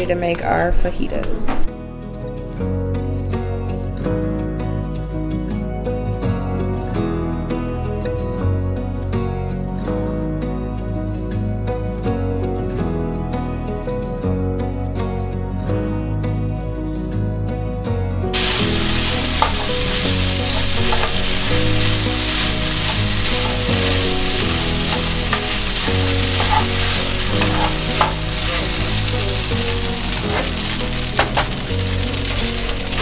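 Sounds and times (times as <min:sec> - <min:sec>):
soft music: 0:00.0 - 0:33.0
meat sizzling in a pan: 0:18.4 - 0:33.0
utensil clicking in pan: 0:19.1 - 0:21.4.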